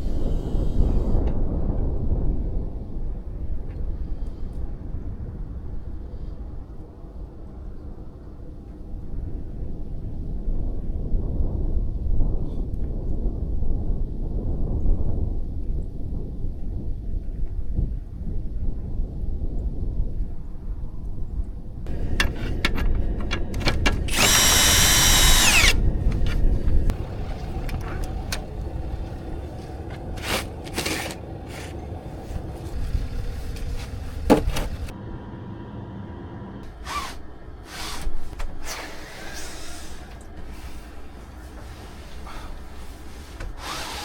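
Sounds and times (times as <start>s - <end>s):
knocks and clatter: 21.9s - 25.0s, 33.4s - 34.9s
power drill running: 21.9s - 28.9s, 36.6s - 40.3s, 43.6s - 44.0s.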